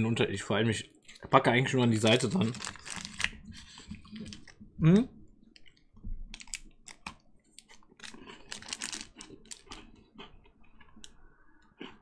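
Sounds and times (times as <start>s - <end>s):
biting and chewing chocolate biscuit: 5.6s - 12.0s.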